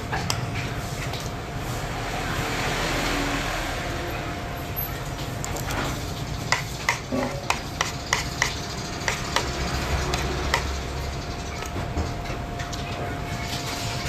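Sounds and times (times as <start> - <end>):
steady background noise: 0.0 - 14.0
utensils knocking and clinking: 6.4 - 12.5.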